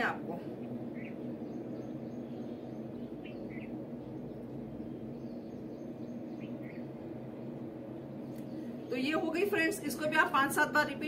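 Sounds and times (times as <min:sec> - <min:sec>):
low background hum: 0:00.0 - 0:11.0
bird chirps: 0:00.9 - 0:07.1.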